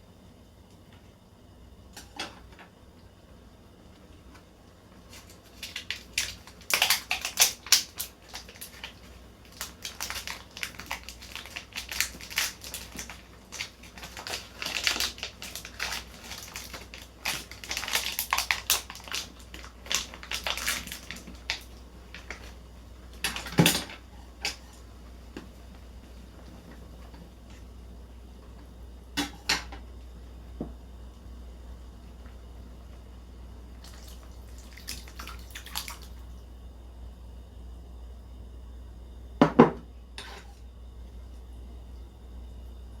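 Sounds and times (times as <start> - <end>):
irregular clicks and crackles: 4.0 - 25.5.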